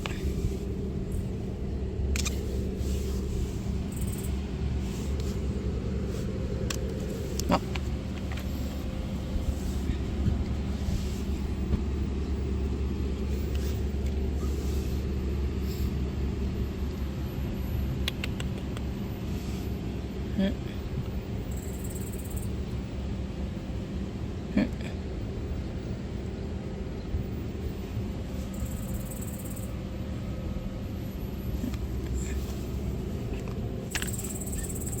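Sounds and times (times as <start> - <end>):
vehicle engine idling: 0.0 - 35.0
small clicks and ticks: 18.0 - 19.0.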